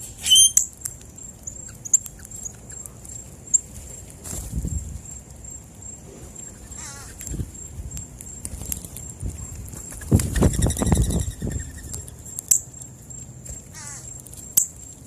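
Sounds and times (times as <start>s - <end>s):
wavering bird trill: 0.0s - 0.8s, 6.4s - 7.7s, 10.2s - 12.7s
birds wings fluttering: 8.4s - 12.2s.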